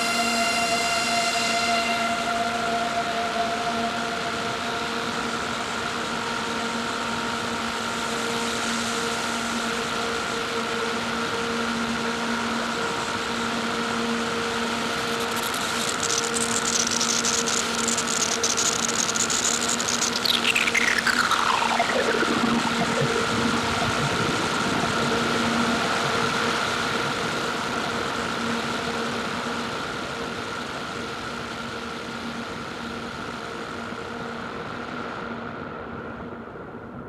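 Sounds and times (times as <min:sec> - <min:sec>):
synthesizer drone: 0:00.0 - 0:29.3
crackling wavering high noise: 0:00.0 - 0:36.9
hissing noise bed: 0:14.1 - 0:26.9
tone sweeping down in pitch: 0:15.0 - 0:24.8.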